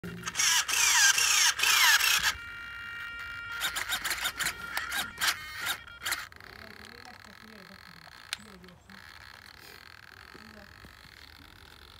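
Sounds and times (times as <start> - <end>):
engine pull-starter whirring: 0.0 - 11.9
faint steady whine: 0.1 - 7.4
scattered clicks: 3.2 - 11.9.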